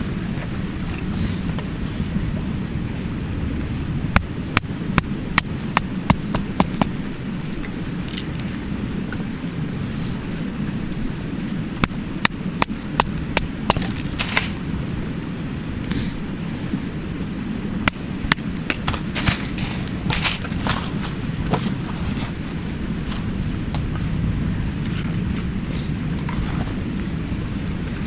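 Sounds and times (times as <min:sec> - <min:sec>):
campfire crackling: 0:00.0 - 0:28.0
stream rushing: 0:00.0 - 0:28.0
fire hissing: 0:15.5 - 0:16.7, 0:17.3 - 0:27.9.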